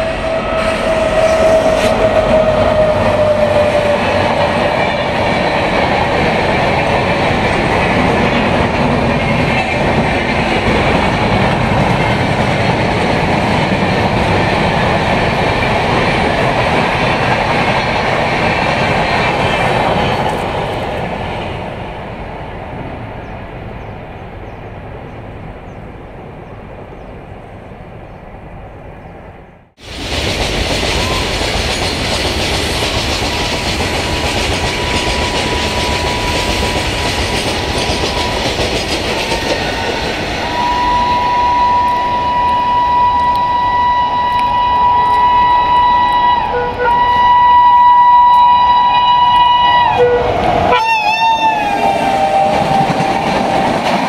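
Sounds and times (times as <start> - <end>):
train rushing past: 0.0 - 28.6, 29.2 - 54.0
single tone dipping in pitch: 40.5 - 47.2.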